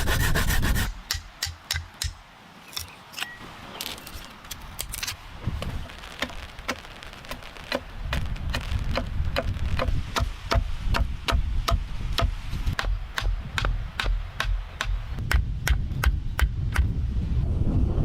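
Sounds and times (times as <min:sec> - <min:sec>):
wind rumble on microphone: 0:05.2 - 0:06.6, 0:07.8 - 0:14.4, 0:15.0 - 0:18.0.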